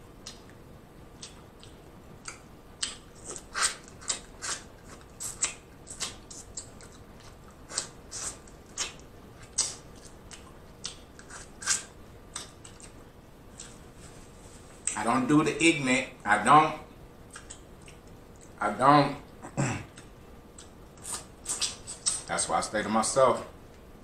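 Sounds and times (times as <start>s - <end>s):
chewing and wet mouth smacks: 1.2s - 13.0s, 17.3s - 18.6s.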